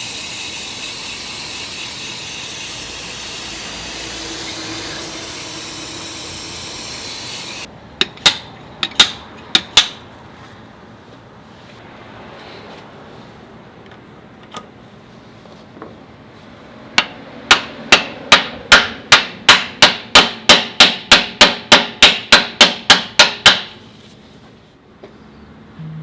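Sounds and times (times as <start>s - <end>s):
hammer striking metal: 8.0s - 10.0s, 17.0s - 23.8s.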